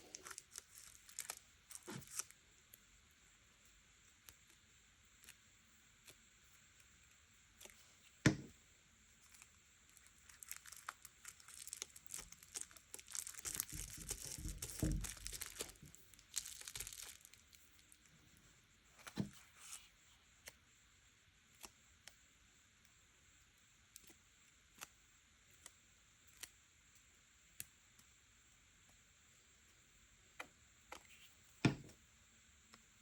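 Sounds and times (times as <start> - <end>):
paper rustling and tearing: 0.1 - 2.3, 10.3 - 17.4.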